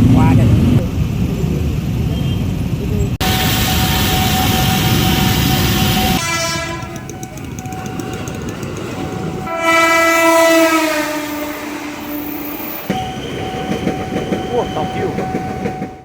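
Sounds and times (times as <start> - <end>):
electric train rumbling past: 0.0 - 16.0
train horn: 3.2 - 15.7.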